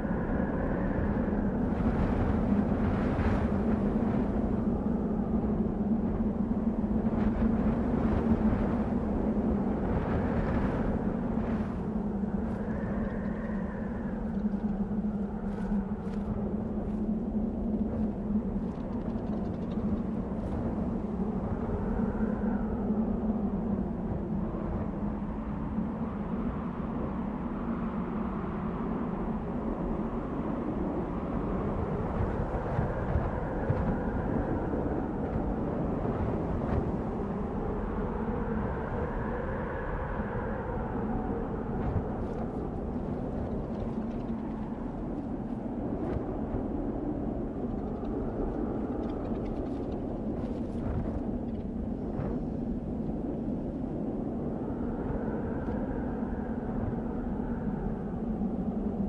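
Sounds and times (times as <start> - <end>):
wind blowing: 0.0 - 59.0
faint light ticks: 14.2 - 16.4, 18.6 - 20.6, 47.6 - 52.4.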